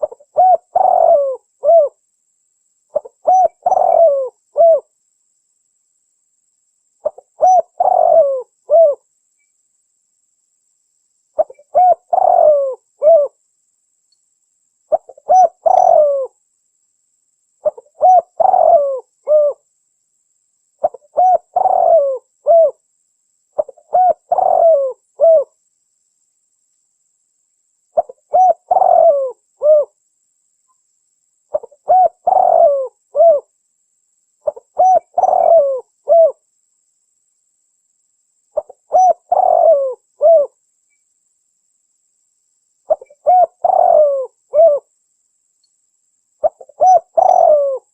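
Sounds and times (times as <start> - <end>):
dove cooing: 0.0 - 2.0, 2.9 - 4.9, 7.0 - 9.0, 11.4 - 13.4, 14.9 - 16.4, 17.6 - 19.6, 20.8 - 22.8, 23.6 - 25.5, 28.0 - 30.0, 31.5 - 33.5, 34.4 - 36.4, 38.6 - 40.6, 42.9 - 44.9, 46.4 - 47.9.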